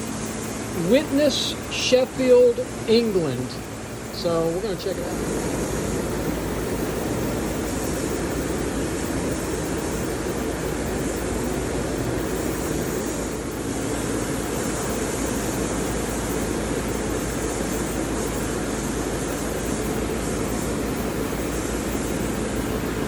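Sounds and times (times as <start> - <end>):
low hum: 0.0 - 14.0
steady rushing noise: 0.0 - 18.7.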